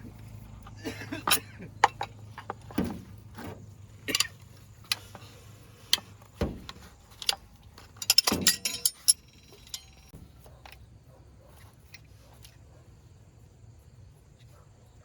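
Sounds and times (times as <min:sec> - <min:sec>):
metallic clinking and knocking: 0:01.2 - 0:05.2, 0:05.9 - 0:10.8.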